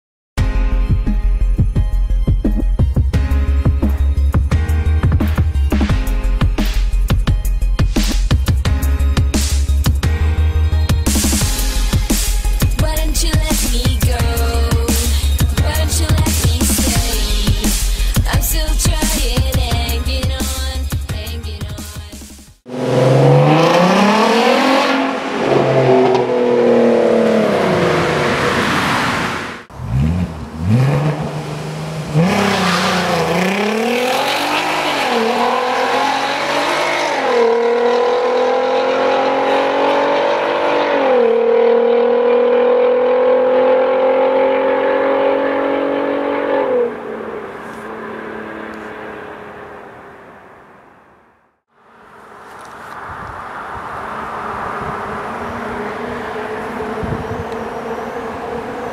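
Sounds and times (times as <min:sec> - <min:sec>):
car engine revving: 0:22.6 - 0:51.3, 0:51.9 - 0:58.9.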